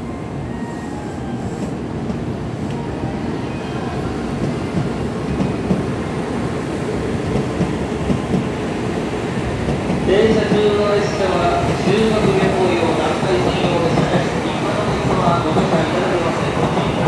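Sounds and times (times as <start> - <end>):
train wheels rumbling: 4.0 - 17.0.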